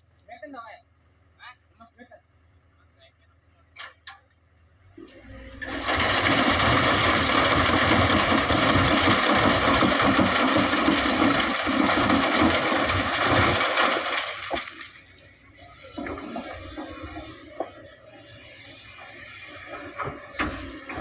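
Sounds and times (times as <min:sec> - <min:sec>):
excavator engine running: 0:00.0 - 0:21.0
sand rushing into truck: 0:05.0 - 0:21.0.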